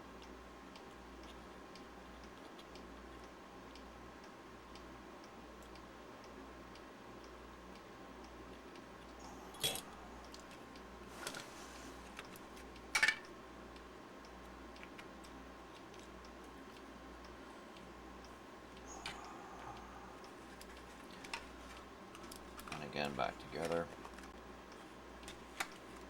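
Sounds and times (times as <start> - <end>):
faint steady ticking: 0.0 - 26.0.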